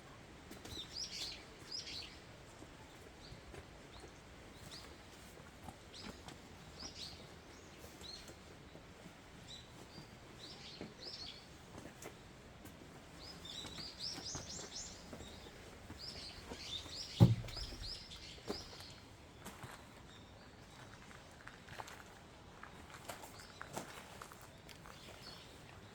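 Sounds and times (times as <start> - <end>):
small birds chirping: 0.4 - 12.3, 12.9 - 21.5, 22.6 - 25.9
dull thump: 17.2 - 18.0.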